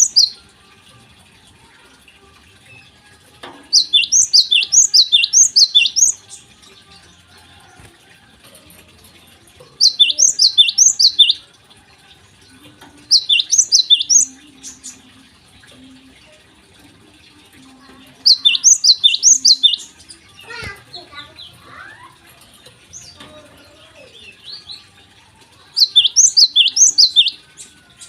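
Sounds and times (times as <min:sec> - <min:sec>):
sparrow chirping: 0:00.0 - 0:00.4, 0:03.7 - 0:06.4, 0:09.8 - 0:11.4, 0:13.1 - 0:15.0, 0:18.2 - 0:20.2, 0:25.8 - 0:27.4.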